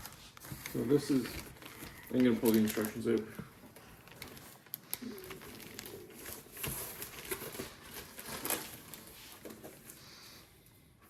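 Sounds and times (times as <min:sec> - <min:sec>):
paper and cardboard rustling: 0:00.0 - 0:10.4.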